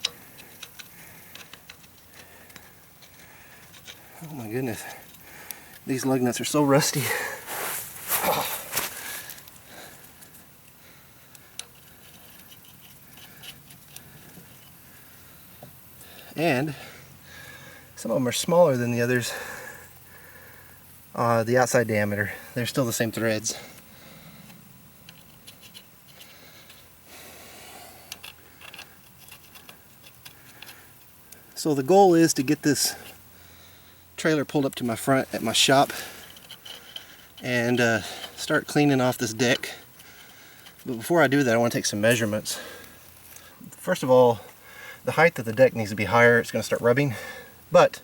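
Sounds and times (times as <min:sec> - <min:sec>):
lug nuts clattering and scraping: 0:00.0 - 0:10.4, 0:28.1 - 0:31.6, 0:34.5 - 0:44.6
soft hiss: 0:00.0 - 0:11.7
handling noise: 0:06.7 - 0:09.6.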